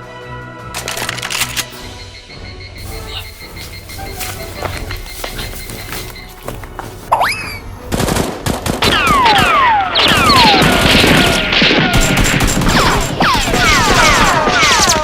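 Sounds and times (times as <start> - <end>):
heavy rapid gunfire: 7.9 - 15.0.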